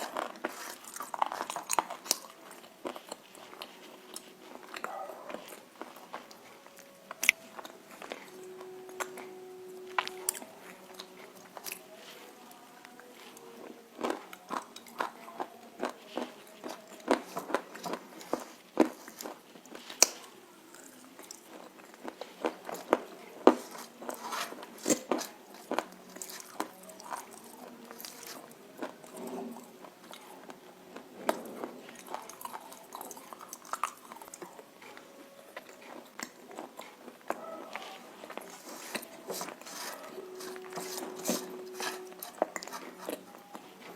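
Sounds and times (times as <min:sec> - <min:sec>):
crunchy food biting and chewing: 0:00.0 - 0:09.3, 0:14.0 - 0:34.6.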